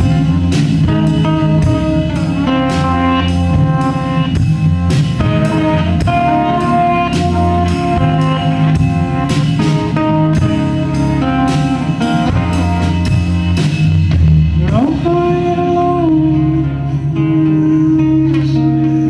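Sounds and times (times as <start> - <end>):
drum kit steady beat: 0.0 - 16.2
bass guitar: 0.0 - 19.0
electric guitars: 0.0 - 19.0.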